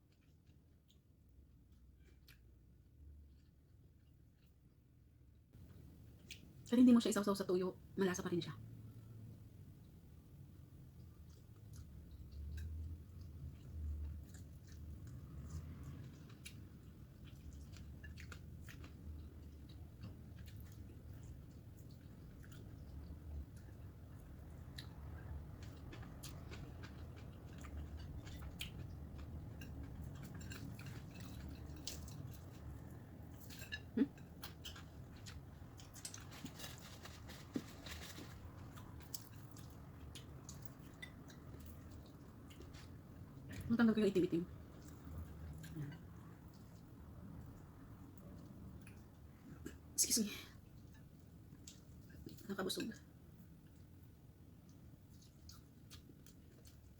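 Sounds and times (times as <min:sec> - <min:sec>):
person chewing food: 0:00.0 - 0:04.6, 0:05.6 - 0:06.7, 0:10.6 - 0:43.7, 0:53.1 - 0:56.9.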